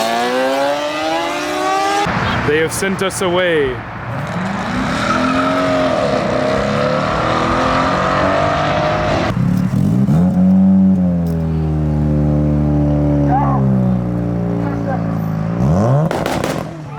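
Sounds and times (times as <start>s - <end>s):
engine revving high: 0.0s - 2.1s, 4.1s - 14.1s
car engines accelerating: 0.0s - 16.9s.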